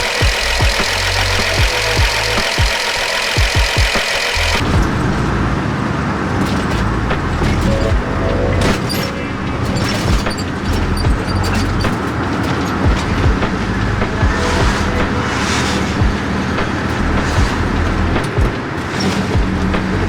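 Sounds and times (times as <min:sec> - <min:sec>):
car engine humming: 0:00.0 - 0:20.0
road noise: 0:00.0 - 0:20.0
sharp thumps: 0:06.4 - 0:20.0.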